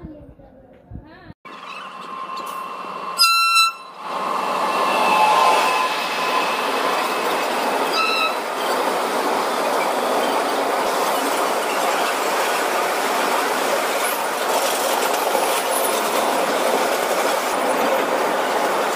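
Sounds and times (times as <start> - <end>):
train horn blasts: 1.5 - 7.2, 7.8 - 8.5
train wheels rushing on rail: 1.5 - 18.9.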